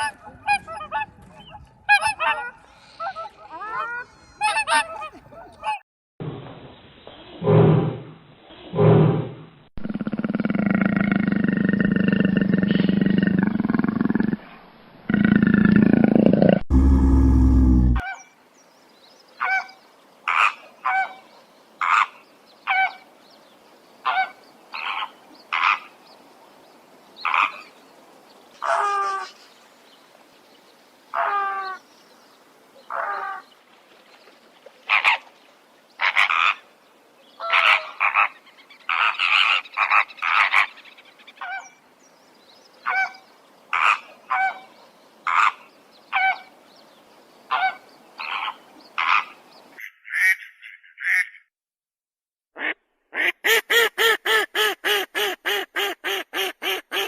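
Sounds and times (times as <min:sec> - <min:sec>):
deep animal roar: 0:08.7 - 0:18.0.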